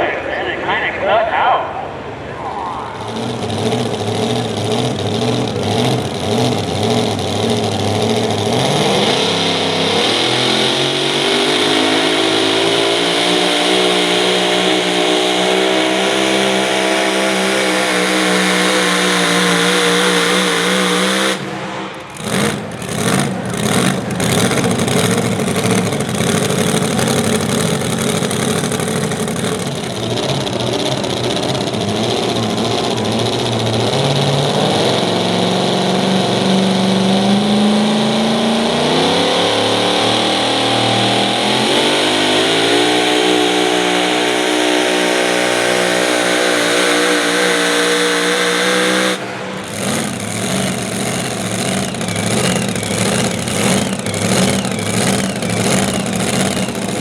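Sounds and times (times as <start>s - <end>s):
truck engine revving: 0.0s - 57.0s
sharp engine cracks: 20.6s - 30.2s.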